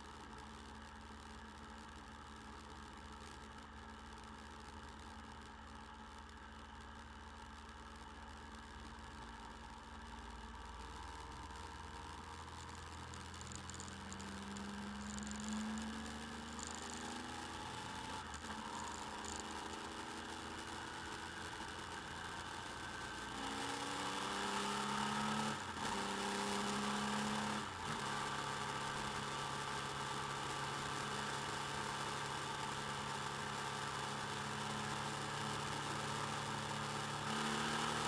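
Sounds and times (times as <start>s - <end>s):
motorcycle engine accelerating: 10.6s - 38.0s.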